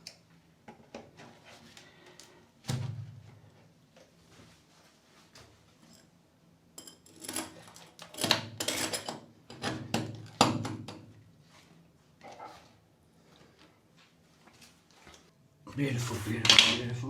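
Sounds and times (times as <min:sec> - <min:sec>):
hard objects clattering: 0:16.4 - 0:16.9.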